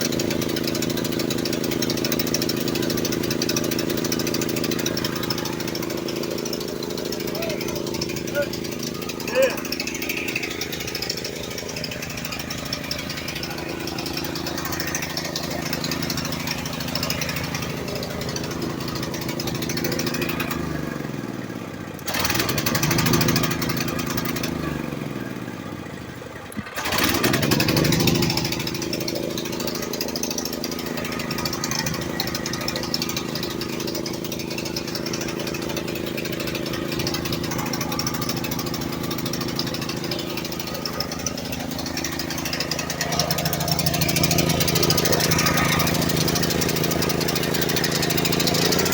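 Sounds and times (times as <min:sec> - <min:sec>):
generator engine running: 0:00.0 - 0:48.9.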